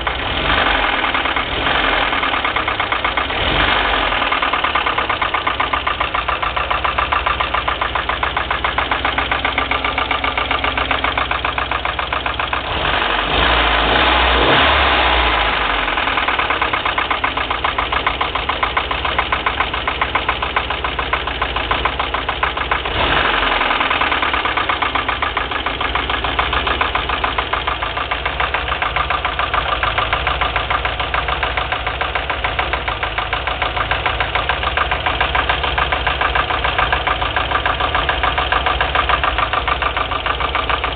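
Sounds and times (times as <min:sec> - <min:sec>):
engine revving: 0:00.0 - 0:40.8
petrol engine idling with knock: 0:00.0 - 0:40.9.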